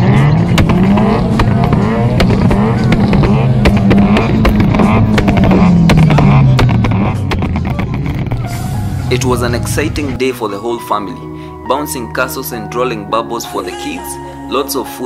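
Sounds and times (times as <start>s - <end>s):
crowd voices: 0.0s - 10.2s
car engine popping: 0.0s - 10.4s
background music: 0.0s - 15.0s.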